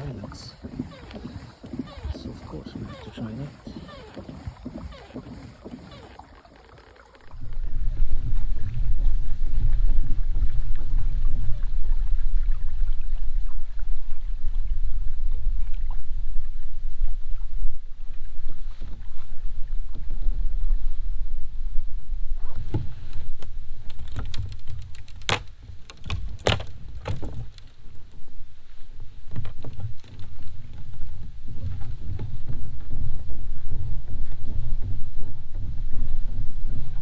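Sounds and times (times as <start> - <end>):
knocks and clicks against boat: 0.0 - 9.0, 22.3 - 36.0
low rumble: 7.3 - 16.8.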